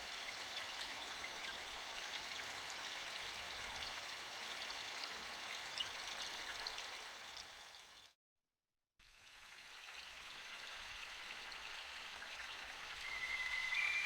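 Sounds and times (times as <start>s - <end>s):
steady rain hiss: 10.3s - 14.0s.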